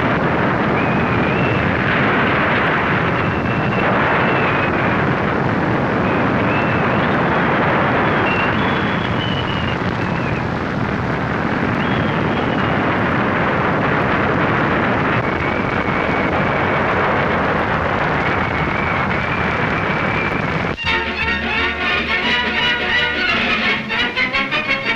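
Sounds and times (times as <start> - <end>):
strong wind blowing: 0.0 - 24.9
thin high wind whistle: 0.7 - 1.9, 2.9 - 4.9, 6.0 - 7.2, 7.9 - 10.5, 18.3 - 24.9.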